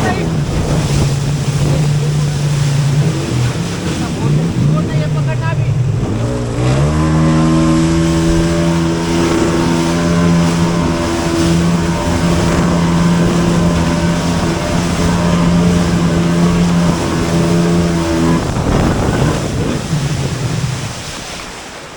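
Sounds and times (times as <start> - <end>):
jet ski engine running hard: 0.0 - 21.9
water rushing: 0.0 - 21.9
wind: 0.0 - 21.9.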